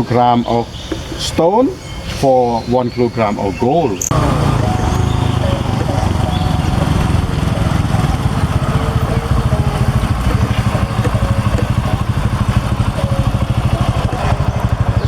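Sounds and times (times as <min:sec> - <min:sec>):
small motorcycle engine running: 0:04.1 - 0:15.0.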